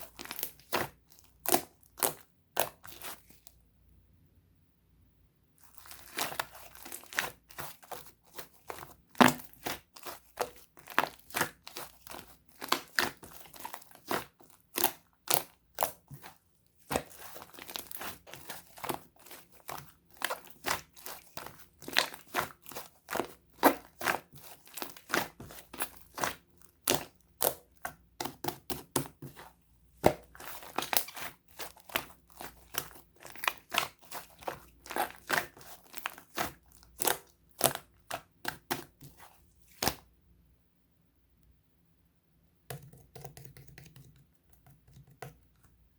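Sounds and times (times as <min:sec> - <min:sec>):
slime squeezed by hand crackling: 0:00.0 - 0:03.4, 0:05.6 - 0:28.3, 0:30.1 - 0:40.0.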